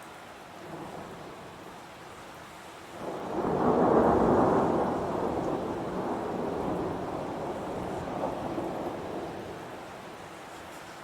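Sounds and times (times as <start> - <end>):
heavy rain: 0.0 - 11.0
thunder rolling: 3.0 - 9.6.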